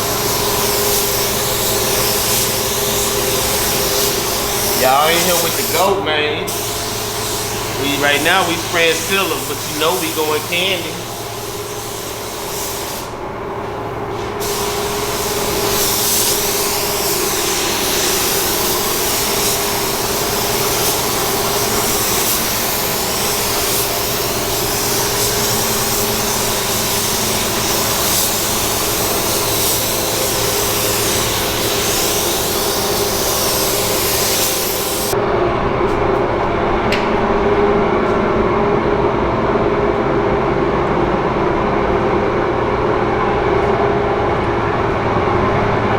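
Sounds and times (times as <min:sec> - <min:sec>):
pneumatic tool air hiss: 0:00.0 - 0:35.2
air compressor humming: 0:00.0 - 0:41.5.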